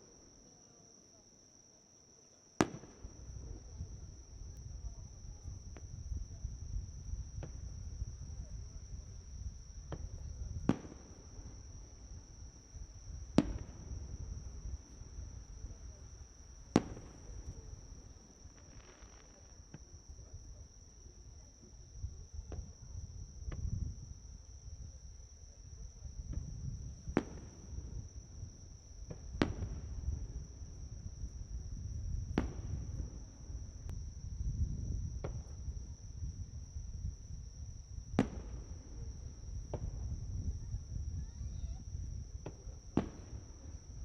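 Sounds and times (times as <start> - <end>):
insect trill: 0.0 - 44.0
fireworks bangs: 2.6 - 4.3, 9.8 - 20.5, 26.3 - 28.1, 29.1 - 30.7, 32.3 - 33.6, 38.1 - 40.2, 42.4 - 44.0
faint fireworks pops: 2.6 - 44.0.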